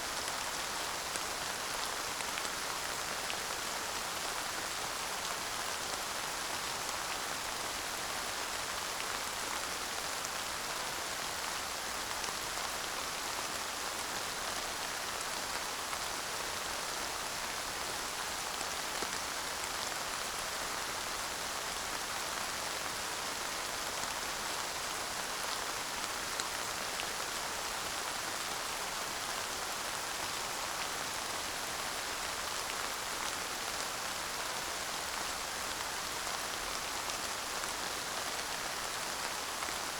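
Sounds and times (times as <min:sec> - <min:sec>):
light rain pattering: 0:00.0 - 0:39.9.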